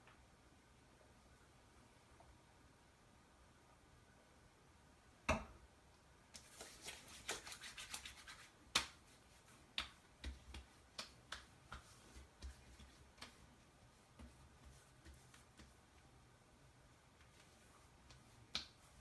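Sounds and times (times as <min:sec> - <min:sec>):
pats and slaps on face: 0:06.4 - 0:09.1, 0:09.7 - 0:13.4, 0:18.1 - 0:18.8
wet rubbing of hands: 0:06.4 - 0:15.8.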